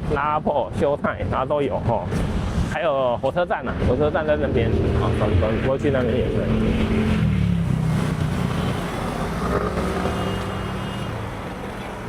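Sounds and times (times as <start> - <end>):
vehicle engine humming: 3.7 - 12.0.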